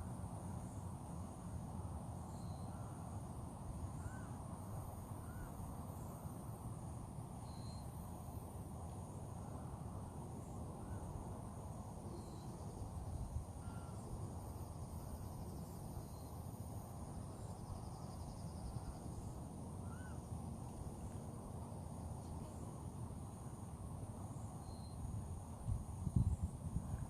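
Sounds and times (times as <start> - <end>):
high insect drone: 0.0 - 27.0
faint bird calls: 4.0 - 4.4, 5.2 - 5.6, 13.6 - 14.1, 17.4 - 20.3.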